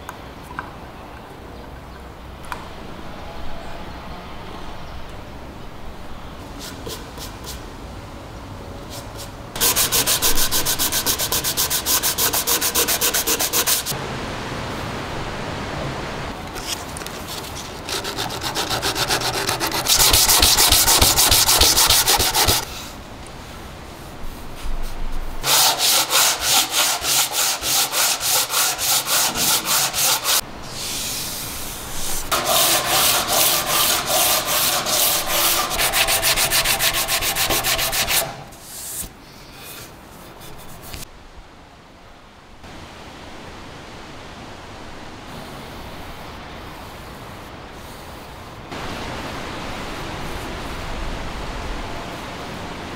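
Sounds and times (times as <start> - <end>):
hand sanding strokes: 8.9 - 14.0, 16.6 - 22.9, 24.0 - 39.1.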